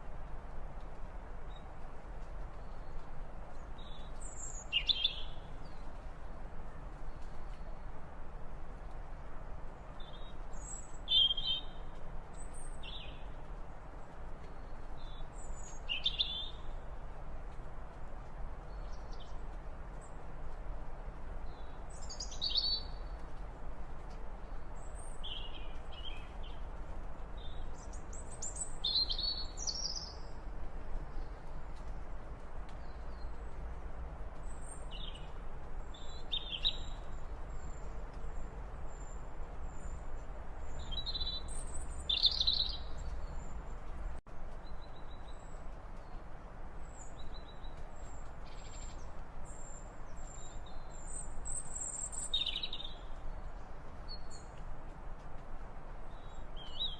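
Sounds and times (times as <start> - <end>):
steady low background noise: 0.0 - 56.9
birds chirping: 34.4 - 44.2.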